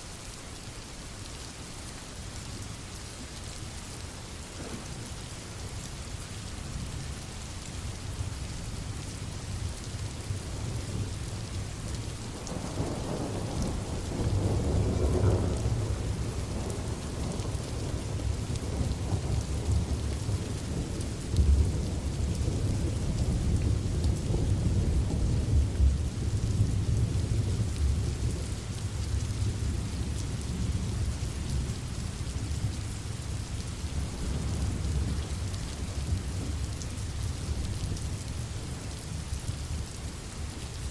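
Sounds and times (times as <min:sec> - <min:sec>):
low thunder rumbling: 0:12.3 - 0:32.7.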